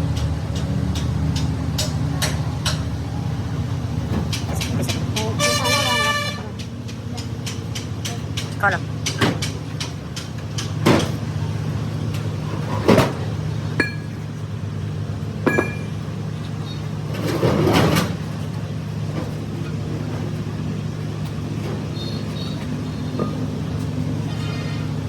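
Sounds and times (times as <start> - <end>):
low mechanical hum: 0.0 - 25.0
metal clanks and clinks: 12.5 - 14.4, 15.4 - 16.2, 22.6 - 24.5.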